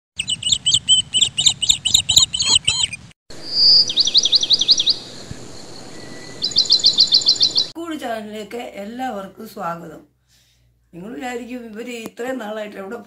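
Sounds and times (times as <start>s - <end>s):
bird chirping and whistling: 0.2s - 7.8s.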